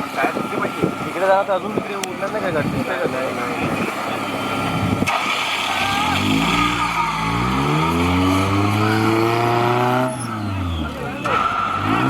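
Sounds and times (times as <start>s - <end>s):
engine revving: 4.1s - 12.0s.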